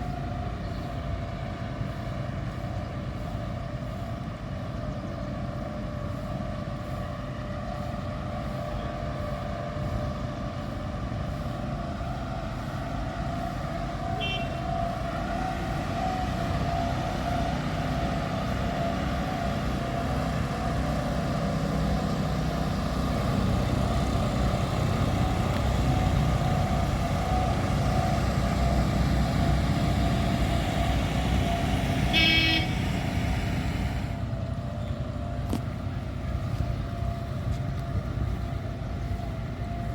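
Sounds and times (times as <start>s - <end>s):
boat engine running: 0.0s - 39.9s
boat horn toot: 14.1s - 14.8s, 32.0s - 33.0s.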